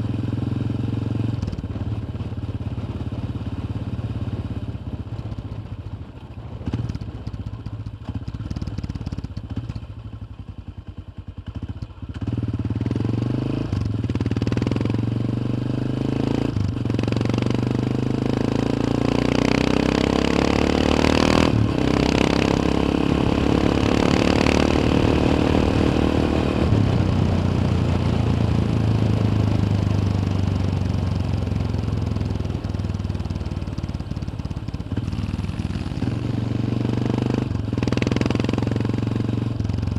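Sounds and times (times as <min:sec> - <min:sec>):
motorcycle engine revving: 0:11.4 - 0:39.9.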